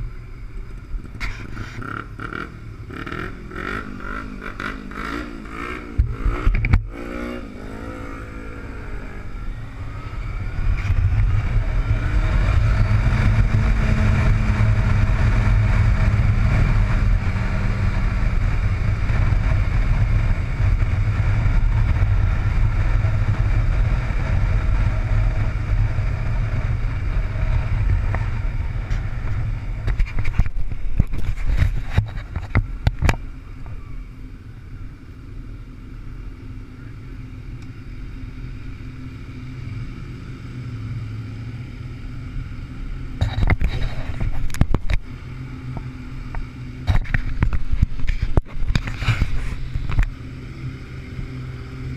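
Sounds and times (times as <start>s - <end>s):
motorcycle engine running: 0.0s - 51.9s
wind noise: 5.8s - 34.0s, 43.2s - 51.8s.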